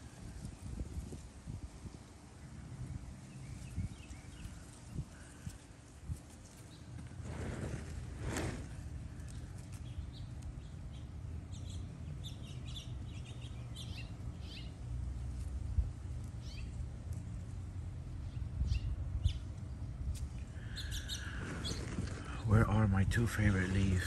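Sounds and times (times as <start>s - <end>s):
low steady rumble: 0.0s - 24.0s
birds chirping: 6.6s - 15.3s, 20.5s - 24.0s.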